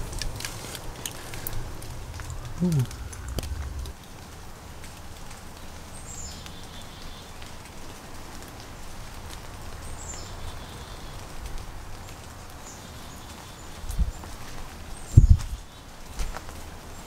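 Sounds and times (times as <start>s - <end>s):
faint scattered ticks: 0.0s - 4.0s
steady low rumble: 0.0s - 4.7s.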